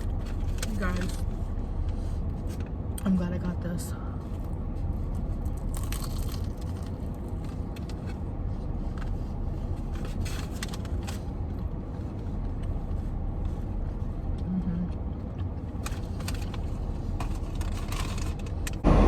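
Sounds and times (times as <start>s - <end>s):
car cabin low rumble: 0.0s - 19.0s
crackling rustles: 4.3s - 14.4s.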